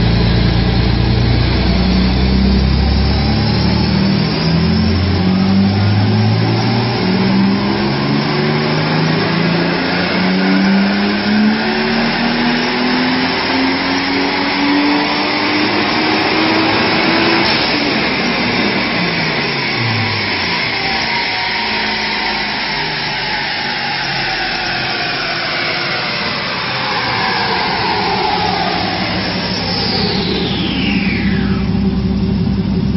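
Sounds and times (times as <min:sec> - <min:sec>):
car engine accelerating: 0:00.0 - 0:32.9.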